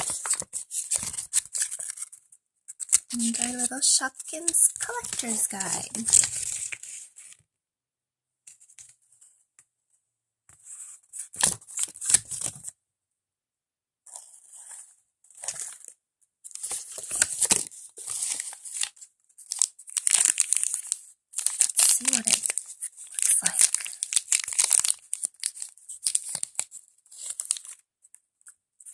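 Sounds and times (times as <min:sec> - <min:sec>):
wrapper tearing and crinkling: 0:16.6 - 0:27.8.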